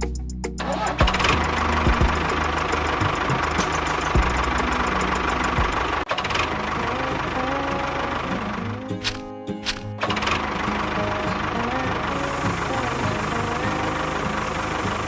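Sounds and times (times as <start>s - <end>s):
background music: 6.6s - 15.0s
small motor whirring: 12.1s - 15.0s.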